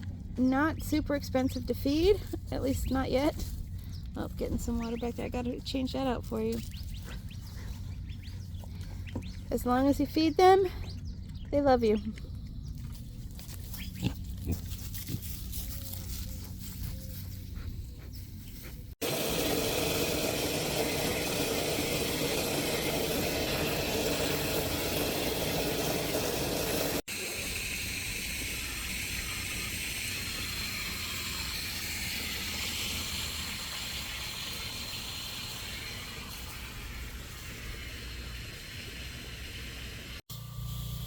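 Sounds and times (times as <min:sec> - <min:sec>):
water running from a hose: 0:19.0 - 0:41.0.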